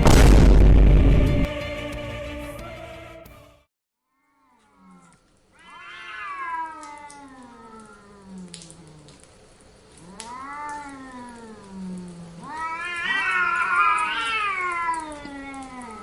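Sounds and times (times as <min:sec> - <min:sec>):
cats yowling: 0:04.4 - 0:09.2, 0:09.9 - 0:16.0.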